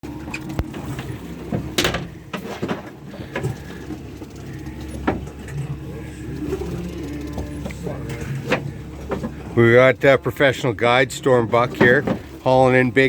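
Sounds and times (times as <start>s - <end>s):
boat engine idling: 0.0s - 13.0s
knocks and clanks on board: 1.5s - 3.6s, 5.0s - 5.4s, 8.4s - 9.4s, 11.7s - 12.4s.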